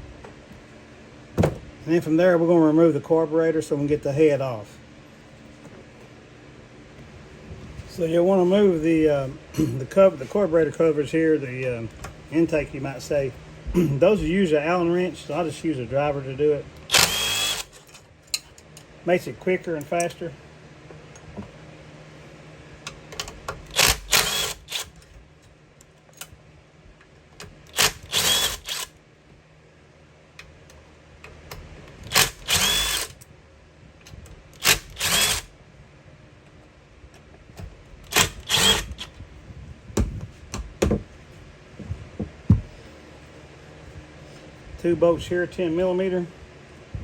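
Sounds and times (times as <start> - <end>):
power driver whirring: 16.8 - 17.9, 23.6 - 25.0, 27.7 - 29.0, 32.0 - 33.2, 34.6 - 35.5, 38.0 - 39.2.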